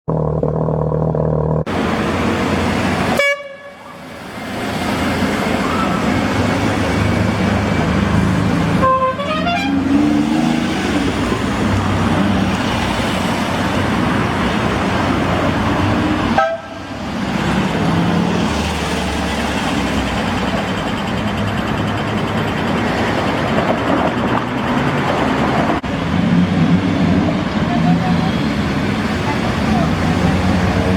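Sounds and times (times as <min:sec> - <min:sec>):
cars driving by: 0:00.1 - 0:30.9
car horns tooting: 0:03.1 - 0:03.9, 0:08.7 - 0:10.1, 0:16.3 - 0:16.9.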